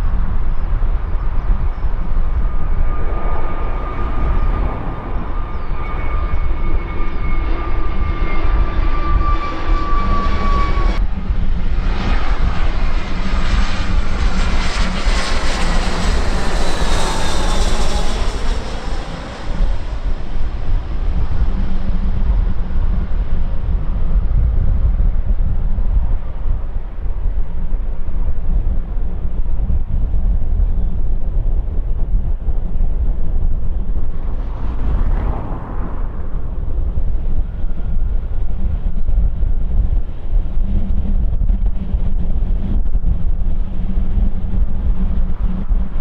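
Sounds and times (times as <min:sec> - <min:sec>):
jet airliner passing: 0:00.0 - 0:46.0
low wind rumble on microphone: 0:00.0 - 0:46.0.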